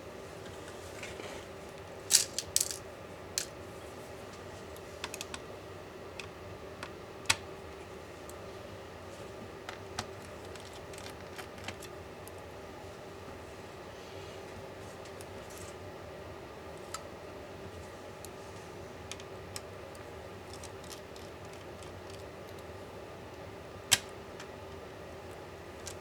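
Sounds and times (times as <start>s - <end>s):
faint steady hum: 0.0s - 26.0s
metal parts clinking on work surface: 2.1s - 2.8s.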